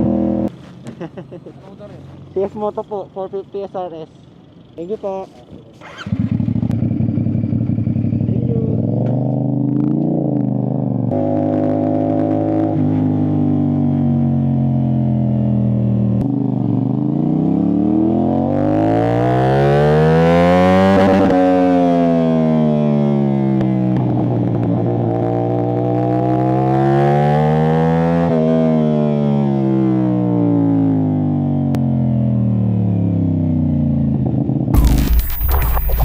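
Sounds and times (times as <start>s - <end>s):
motorcycle engine accelerating: 5.8s - 36.0s.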